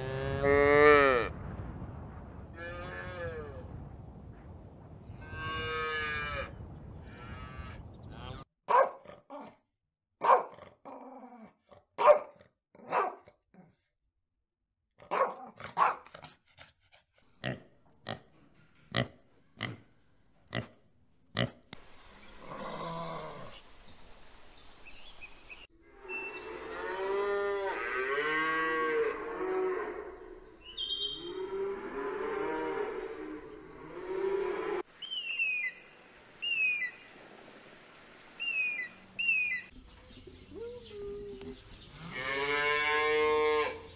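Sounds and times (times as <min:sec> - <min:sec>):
pig grunting: 0:17.4 - 0:18.3.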